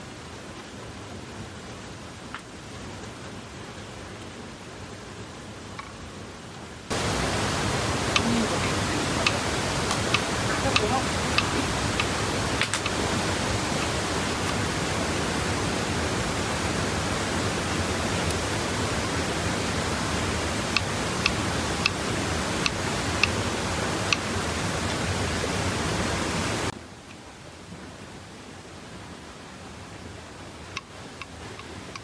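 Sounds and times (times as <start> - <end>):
rushing water: 0.0 - 32.0.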